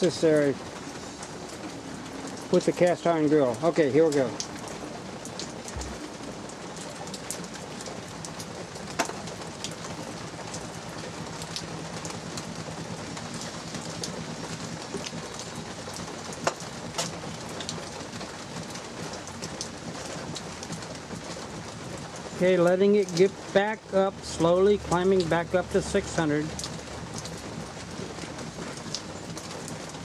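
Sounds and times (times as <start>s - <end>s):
light rain falling: 0.0s - 30.0s
sharp drip clicks: 6.8s - 19.7s, 22.6s - 23.7s, 24.7s - 30.0s.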